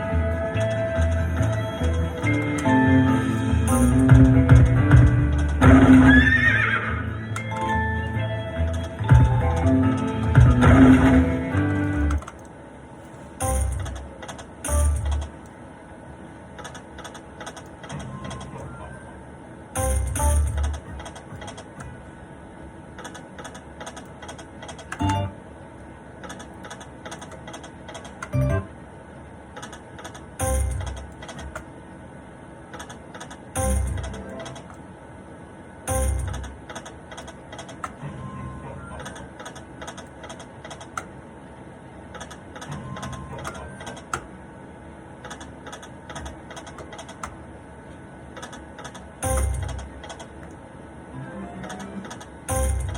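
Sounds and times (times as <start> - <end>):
slot machine quick clicks: 0.6 - 6.0, 13.4 - 15.4, 16.6 - 18.8, 19.8 - 22.0, 23.0 - 25.4, 29.6 - 31.7, 32.8 - 34.8, 35.9 - 38.0, 48.4 - 50.3, 51.5 - 52.9
slot machine chime and thump: 3.7 - 6.0, 8.9 - 9.6, 10.3 - 11.3, 13.4 - 14.0, 14.7 - 15.3, 19.8 - 21.0, 25.0 - 25.4, 30.4 - 31.0, 33.6 - 34.3, 35.9 - 36.5, 49.2 - 49.9, 52.5 - 52.9
electronic beeps and chimes: 25.0 - 25.4, 35.9 - 36.5
quick clicks and ticks: 26.2 - 28.4.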